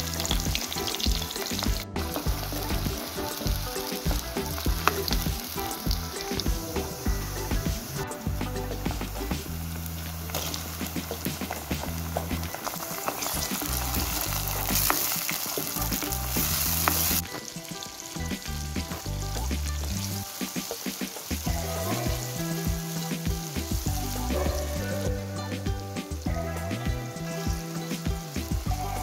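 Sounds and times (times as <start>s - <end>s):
onion and tomato sizzling in oil: 0.0s - 29.0s.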